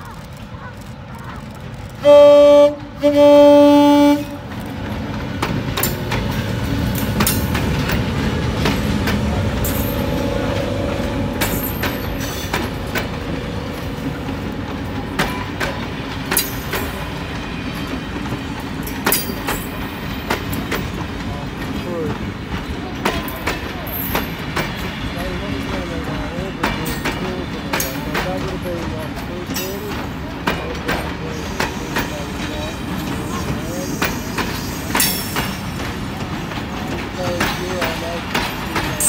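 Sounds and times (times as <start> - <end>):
train carriages rumbling past: 0.0 - 39.0
wheels clicking over rail joints: 0.0 - 39.0
locomotive horn blasts: 2.0 - 4.5.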